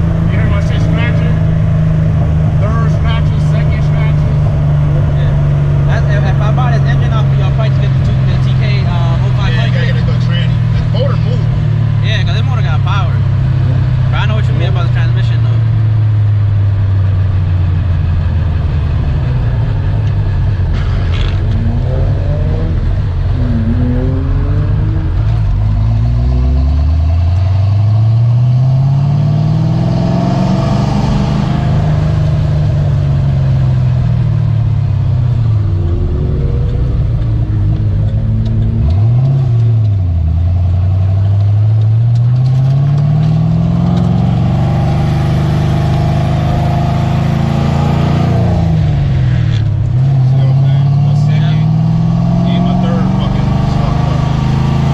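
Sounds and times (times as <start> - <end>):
car engine accelerating hard: 0.0 - 54.9
low drone: 14.8 - 54.9.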